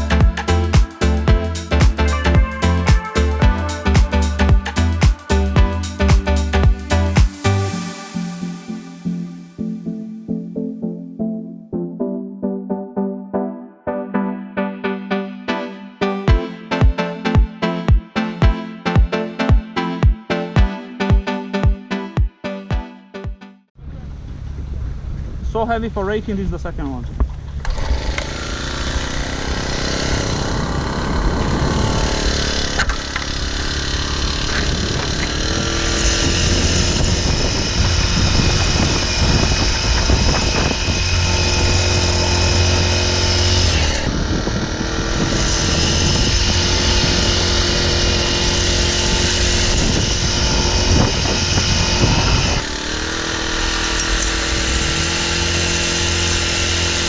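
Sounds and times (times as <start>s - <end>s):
engine-driven machinery running: 23.8s - 57.0s.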